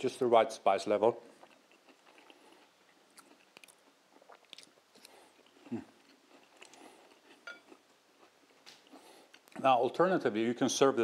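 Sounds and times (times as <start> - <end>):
crunchy chewing: 1.3 - 9.6.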